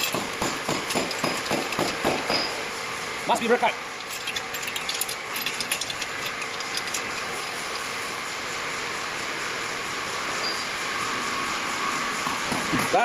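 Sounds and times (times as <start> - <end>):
parts clicking and rattling: 0.0 - 2.6, 3.4 - 8.0
steady machine noise: 0.0 - 13.0.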